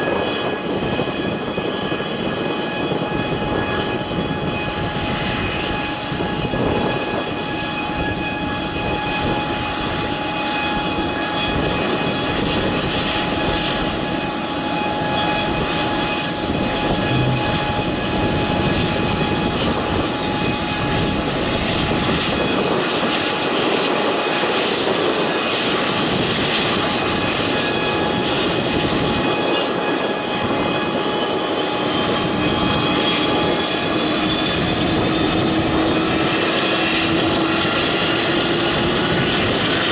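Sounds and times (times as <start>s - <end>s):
turboprop engines running: 0.0s - 39.9s
engine whining tones: 15.0s - 20.5s.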